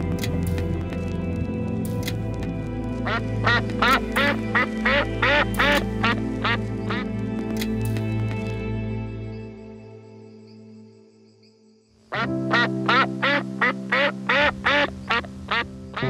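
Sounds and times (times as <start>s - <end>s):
background music: 0.0s - 16.0s
duck quacking: 3.0s - 7.0s, 12.1s - 15.7s.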